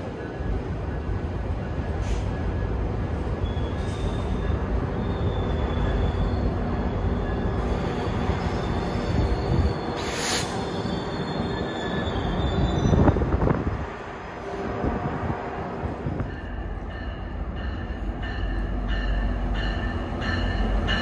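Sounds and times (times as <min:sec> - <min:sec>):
train wheels rumbling on rail: 0:00.0 - 0:21.0
faint wheel squeal: 0:07.8 - 0:13.2
short air hiss: 0:10.0 - 0:10.6.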